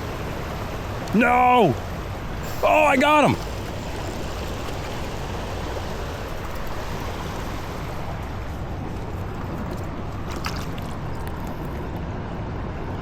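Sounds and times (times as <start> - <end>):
stream flowing over rocks: 0.0 - 12.0.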